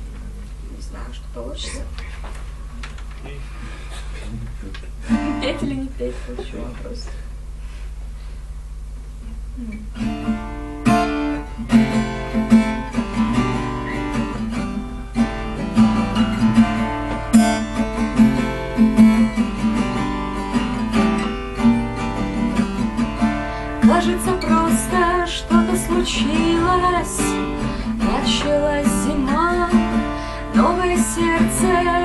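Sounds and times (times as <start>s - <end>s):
acoustic guitar strumming chords: 5.0s - 5.9s, 9.4s - 32.0s.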